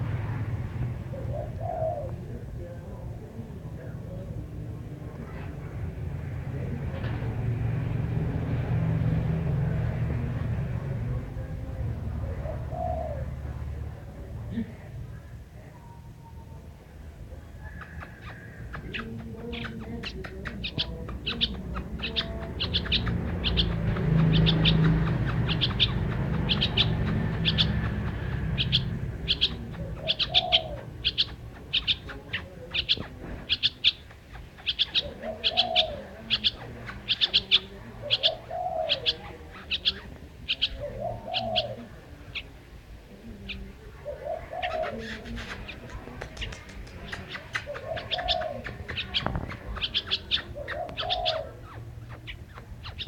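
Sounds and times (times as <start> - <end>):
low rumble: 0.0 - 17.4
dove cooing: 1.0 - 3.0, 12.1 - 13.8, 17.6 - 53.0
small bird chirping: 17.6 - 42.5, 43.4 - 53.0.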